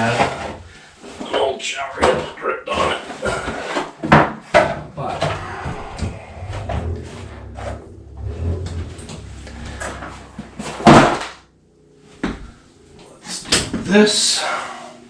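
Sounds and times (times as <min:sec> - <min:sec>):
loud bang: 0:05.2 - 0:11.5.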